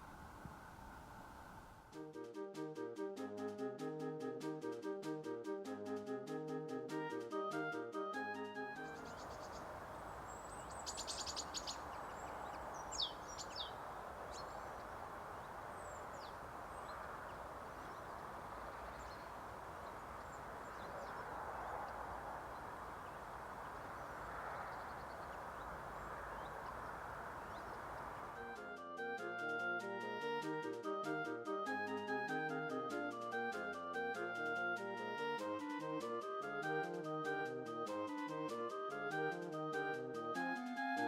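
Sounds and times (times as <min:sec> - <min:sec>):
outdoor hiss: 0:00.0 - 0:02.0, 0:09.0 - 0:28.5
songbird calling: 0:08.8 - 0:28.6.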